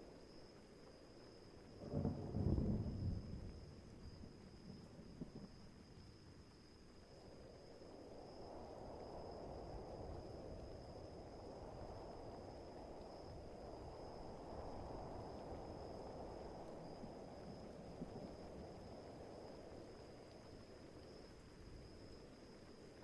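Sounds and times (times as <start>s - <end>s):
crickets trilling: 0.0s - 23.0s
rain and wind rushing: 1.7s - 5.7s.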